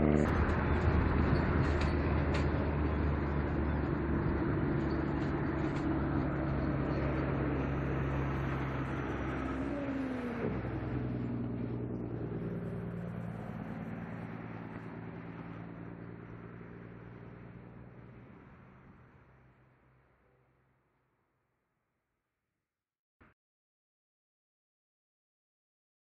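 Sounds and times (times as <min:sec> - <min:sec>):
carriages rumbling on rails: 0:00.0 - 0:11.2
whine sliding in pitch: 0:00.0 - 0:16.1
train engine drone: 0:00.0 - 0:20.4.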